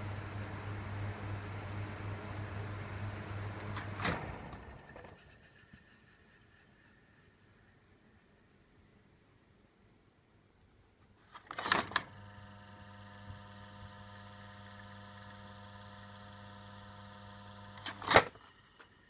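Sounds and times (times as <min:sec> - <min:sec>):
fan motor humming: 0:00.0 - 0:05.7, 0:11.6 - 0:19.0.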